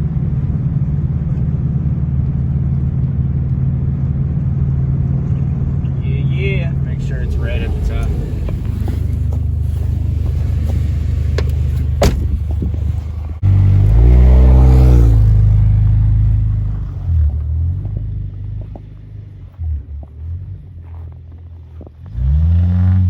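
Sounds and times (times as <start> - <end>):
car engine revving: 5.5 - 20.4.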